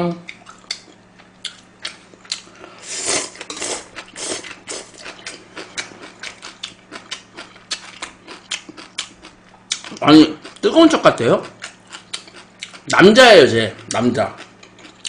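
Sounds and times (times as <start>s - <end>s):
wet chewing and mouth smacks: 0.3s - 2.5s, 4.0s - 10.6s, 11.5s - 12.9s.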